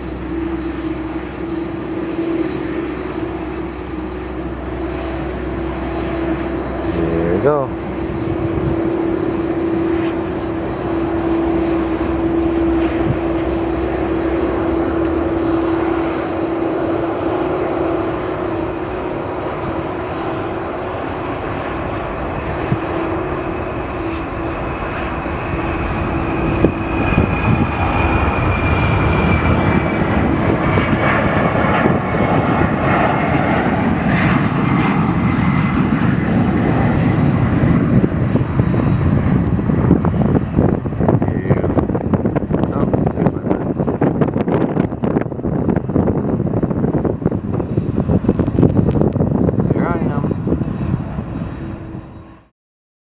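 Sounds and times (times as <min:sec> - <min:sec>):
high tone dropping in pitch: 0:00.0 - 0:37.8
jet engines roaring: 0:00.0 - 0:52.5.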